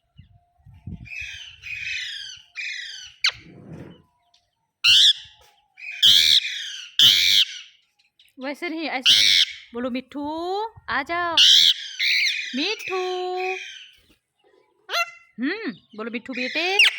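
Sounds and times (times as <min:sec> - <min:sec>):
parrot harsh screeches: 0:06.0 - 0:07.7, 0:11.4 - 0:12.6
parrot chattering calls: 0:11.4 - 0:12.6.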